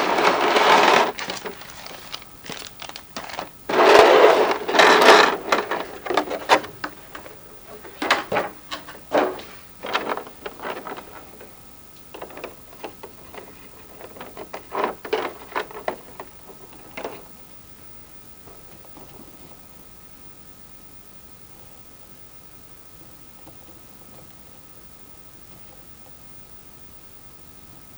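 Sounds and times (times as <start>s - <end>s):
plastic packaging rustling: 0.0s - 17.5s.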